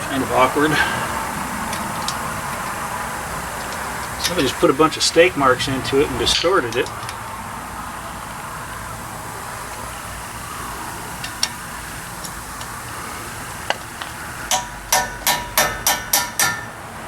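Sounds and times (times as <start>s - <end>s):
hammer tapping on steel: 14.5s - 16.8s.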